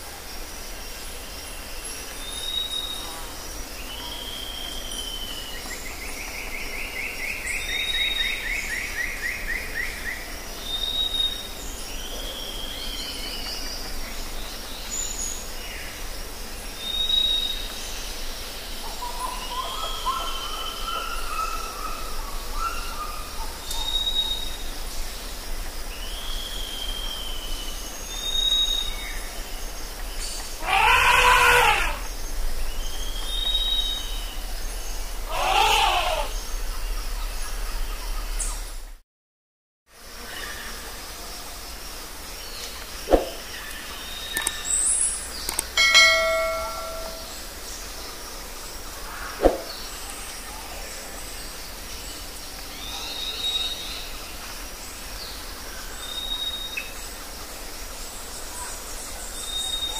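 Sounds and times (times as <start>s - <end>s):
steady outdoor hiss: 0.0s - 39.0s, 39.9s - 59.9s
birds singing: 1.0s - 38.8s, 40.2s - 59.9s
low warbled bird phrase: 30.6s - 32.1s, 35.1s - 38.7s, 46.0s - 47.5s
fast bird trill: 45.8s - 47.4s.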